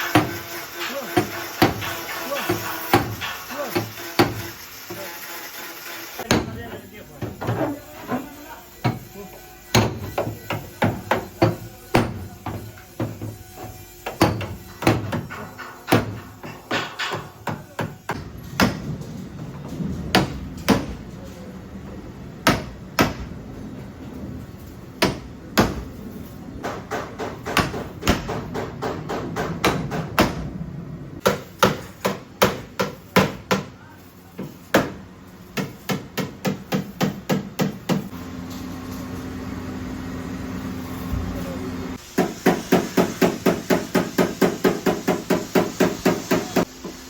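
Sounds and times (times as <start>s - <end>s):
hammer beating sheet metal: 0.0s - 4.6s, 9.7s - 18.9s, 20.1s - 21.0s, 22.4s - 23.3s, 26.6s - 30.5s, 31.2s - 33.8s, 35.6s - 38.1s, 42.2s - 46.7s.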